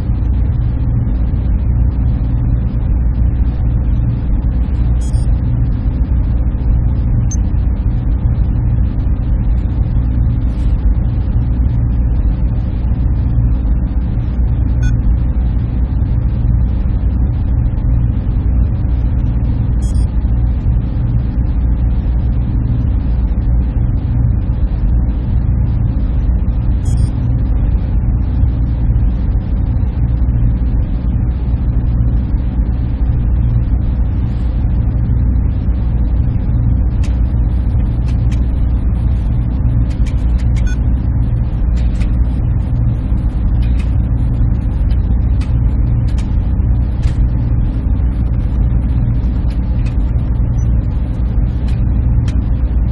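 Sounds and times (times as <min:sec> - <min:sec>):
cooling fans humming: 0:00.0 - 0:52.9.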